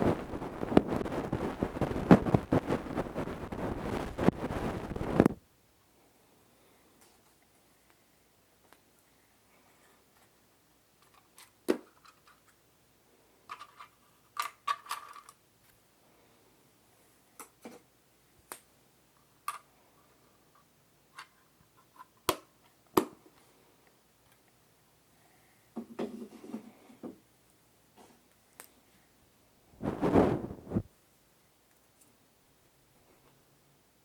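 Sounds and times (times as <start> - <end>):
scratchy rustles: 0.0 - 5.4, 29.8 - 30.9
tools scraping a microphone: 0.0 - 5.4.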